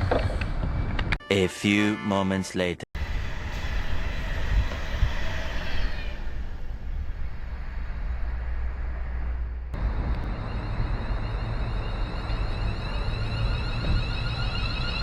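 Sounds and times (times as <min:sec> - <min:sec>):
faint high whine: 0:03.0 - 0:15.0
train rumbling on rails: 0:03.0 - 0:15.0.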